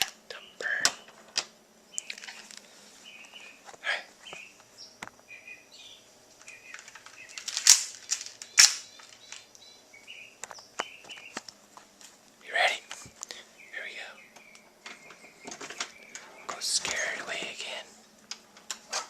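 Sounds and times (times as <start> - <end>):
bird chirping: 0.3 - 1.2, 1.8 - 11.5, 12.4 - 18.1
sharp loud cracks: 7.3 - 9.5.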